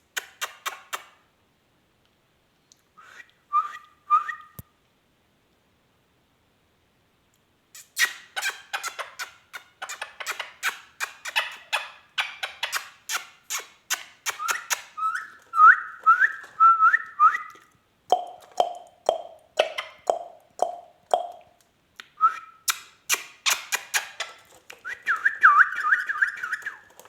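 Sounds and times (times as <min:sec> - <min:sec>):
parakeet chirps and whistles: 0:07.8 - 0:17.5, 0:22.6 - 0:26.9.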